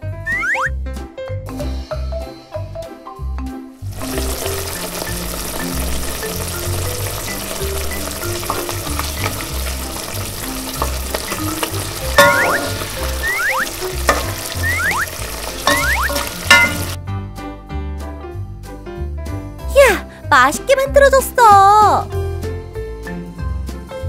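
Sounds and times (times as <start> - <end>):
children's music with bouncing bass: 0.0 - 24.0
frying pan sizzle: 3.8 - 17.0
rising whistle-like tones: 13.2 - 13.7.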